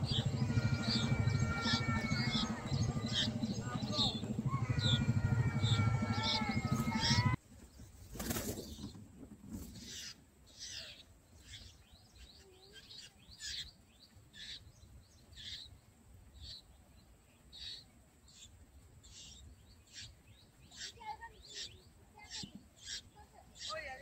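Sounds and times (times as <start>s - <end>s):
bird wings fluttering: 6.6s - 10.0s.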